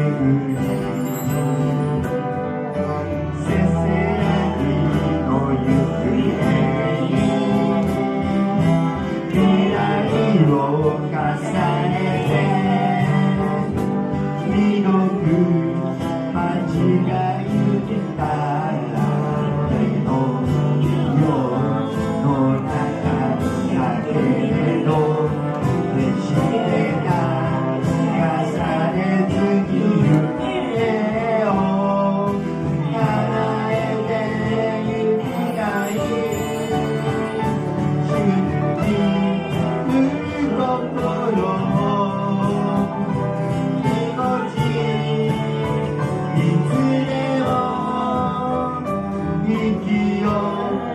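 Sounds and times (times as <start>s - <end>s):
guitar: 0.0s - 50.9s
person singing: 0.0s - 50.9s.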